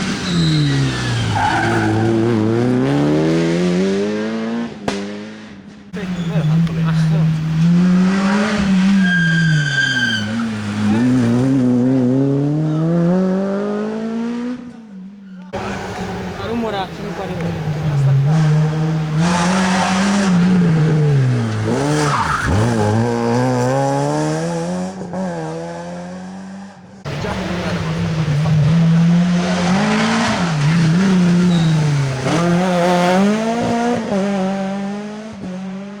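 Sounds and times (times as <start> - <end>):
tyre squeal: 0.0 - 2.2, 6.0 - 6.8, 8.3 - 11.2, 30.2 - 32.1
rally car engine: 0.0 - 36.0.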